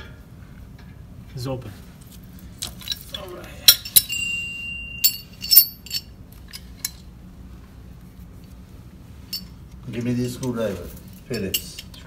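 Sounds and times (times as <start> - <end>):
metal hand tools clinking: 2.6 - 7.0, 10.4 - 12.0
sharp metal hits ringing: 3.6 - 6.2.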